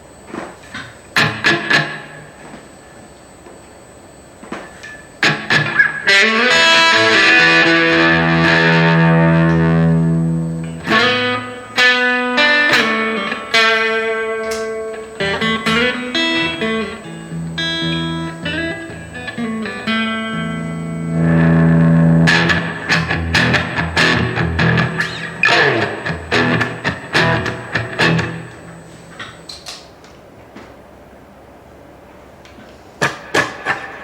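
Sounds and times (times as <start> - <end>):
electric guitar with reverb: 1.2 - 2.4, 5.2 - 29.6.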